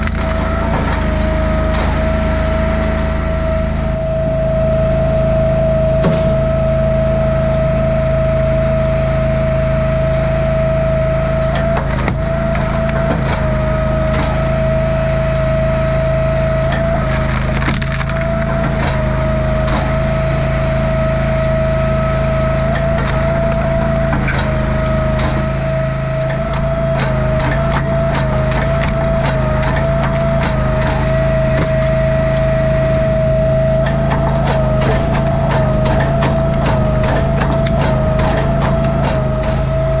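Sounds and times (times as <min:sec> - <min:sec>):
wood cracking and splintering: 0:00.0 - 0:03.1, 0:16.5 - 0:21.0, 0:22.4 - 0:40.0
log splitter engine running: 0:00.0 - 0:40.0.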